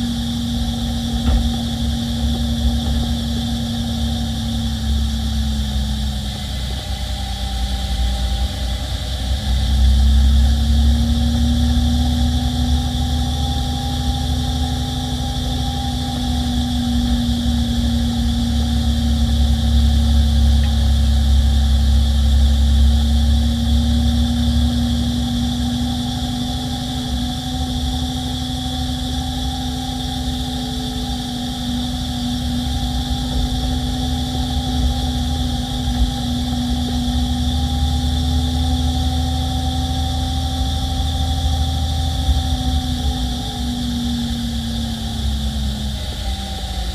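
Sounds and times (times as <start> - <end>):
truck diesel engine rumbling: 0.0 - 6.7
steady drivetrain whine: 0.0 - 46.9.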